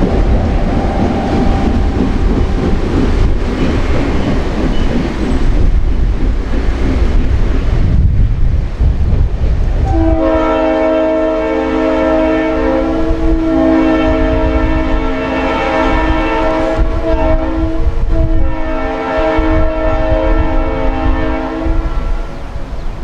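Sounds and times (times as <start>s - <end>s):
passing train rumble: 0.0s - 23.0s
locomotive air horn blasts: 9.9s - 22.4s.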